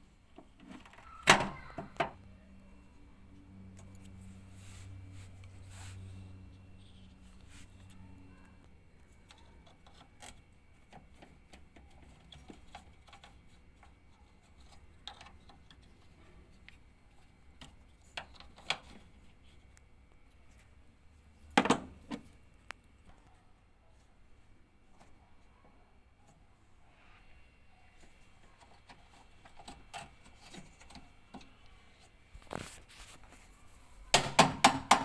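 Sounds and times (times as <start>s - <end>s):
faint low hum: 0.0s - 35.0s
tools clicking and knocking: 34.2s - 35.0s.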